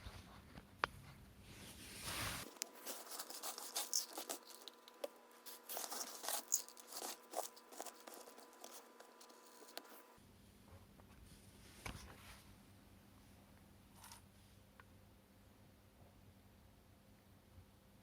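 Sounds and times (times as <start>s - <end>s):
hands handling plastic parts: 2.0s - 10.1s.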